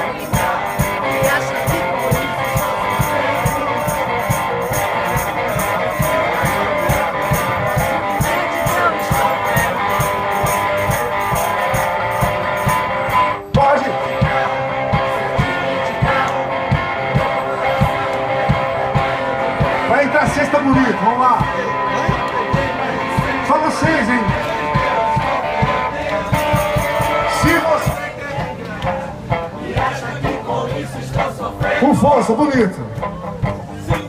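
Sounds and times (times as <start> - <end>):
percussion pulse: 0.0 - 13.4, 24.4 - 29.0
strummed electric guitar: 0.0 - 34.0.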